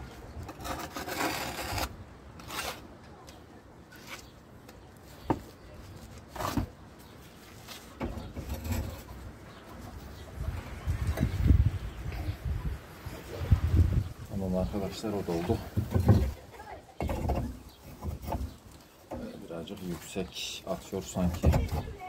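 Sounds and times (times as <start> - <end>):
trowel scraping mortar: 0.4 - 2.9, 8.2 - 9.2.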